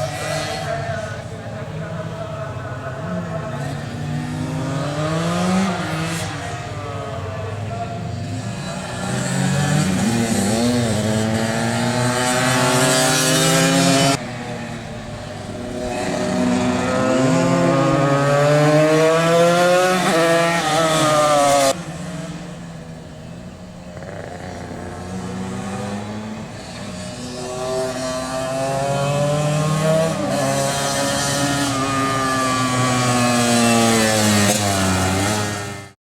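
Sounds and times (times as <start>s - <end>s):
two-stroke motorcycle engines revving: 0.0s - 36.0s.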